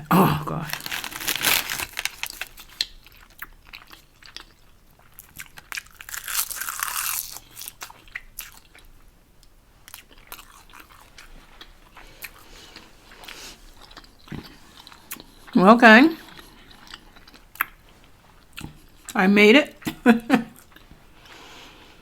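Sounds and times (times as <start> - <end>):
chewing with wet mouth clicks: 2.6 - 6.1, 13.2 - 15.5, 16.2 - 18.9.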